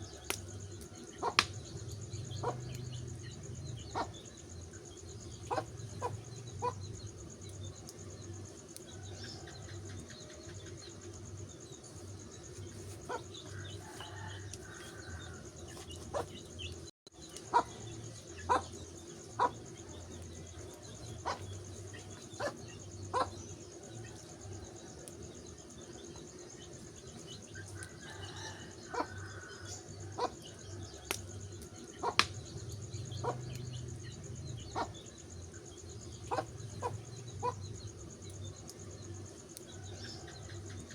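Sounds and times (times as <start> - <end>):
wood fire crackling: 0.2 - 3.7, 4.6 - 17.5, 31.0 - 34.6
fire popping: 0.2 - 3.8, 31.0 - 34.6.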